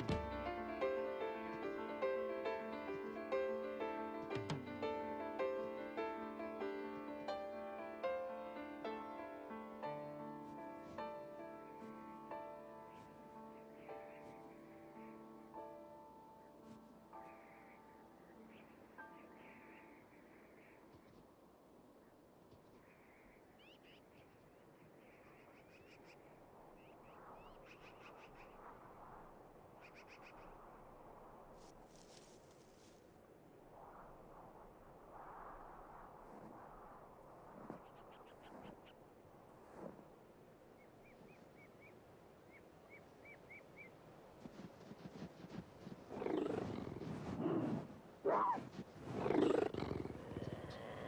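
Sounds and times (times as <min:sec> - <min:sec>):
faint high bird chirps: 0:17.2 - 0:21.2
wild cats growling and snarling: 0:46.1 - 0:51.0.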